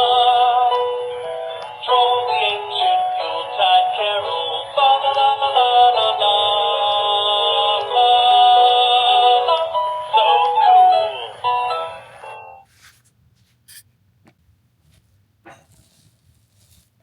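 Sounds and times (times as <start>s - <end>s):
tinny singing with music: 1.6s - 11.4s.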